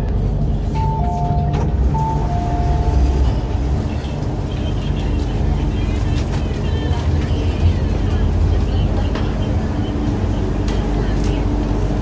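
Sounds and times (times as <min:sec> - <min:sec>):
train humming: 0:00.0 - 0:12.0.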